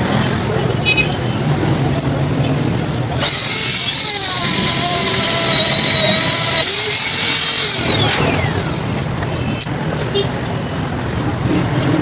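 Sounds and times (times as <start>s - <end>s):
air tool high-pitched whine: 3.2s - 9.1s.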